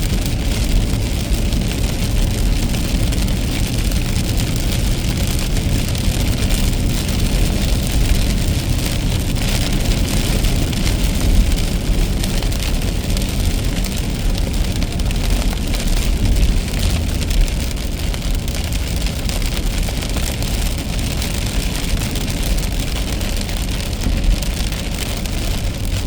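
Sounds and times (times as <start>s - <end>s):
rain and wet tyres hissing: 0.0s - 26.0s
road rumble: 0.0s - 26.0s.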